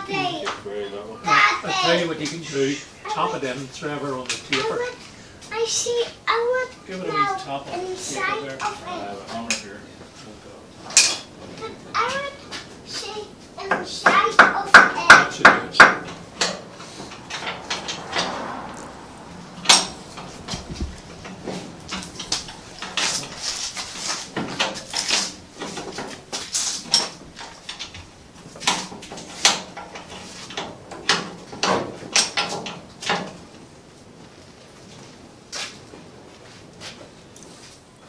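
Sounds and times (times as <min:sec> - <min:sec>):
metal tools clanking: 0:15.8 - 0:30.7.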